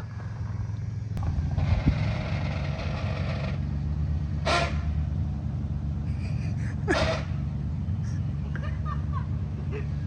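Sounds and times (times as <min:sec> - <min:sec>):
car engine running low: 0:00.0 - 0:10.0
creaking scraping noise: 0:01.5 - 0:03.6.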